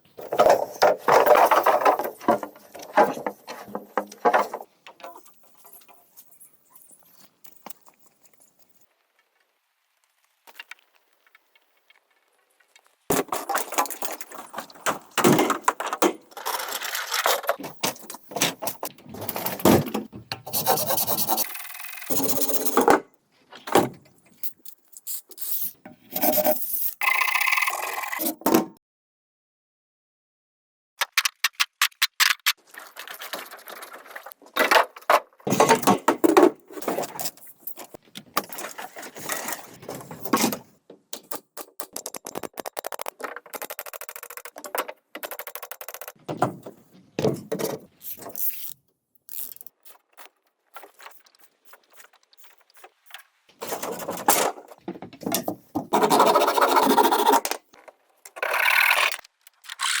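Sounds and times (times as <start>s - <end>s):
scraping and rubbing bamboo: 0.2s - 7.2s, 20.5s - 21.5s, 25.0s - 27.0s, 36.6s - 40.3s, 46.8s - 54.8s, 55.5s - 57.7s.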